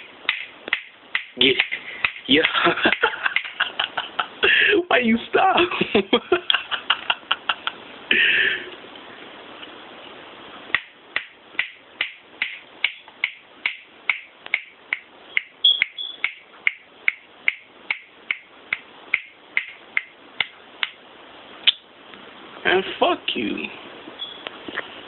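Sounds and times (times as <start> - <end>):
bird squeak: 15.3 - 16.3, 24.2 - 24.4.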